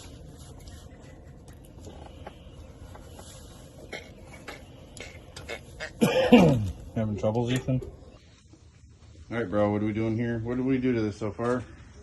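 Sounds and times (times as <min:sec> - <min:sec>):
low steady background noise: 0:00.0 - 0:12.0.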